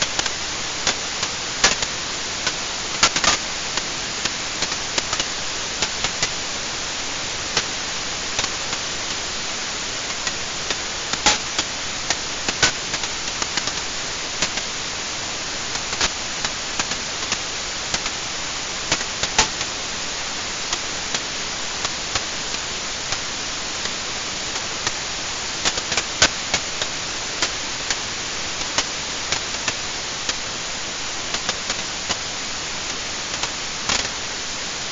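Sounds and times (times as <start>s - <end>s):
fire crackling and popping: 0.0s - 34.5s.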